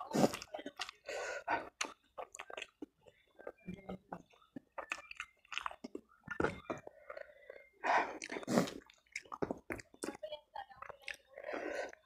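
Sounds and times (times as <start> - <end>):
close-miked chewing: 0.0 - 12.0
mouth clicks: 4.5 - 10.2.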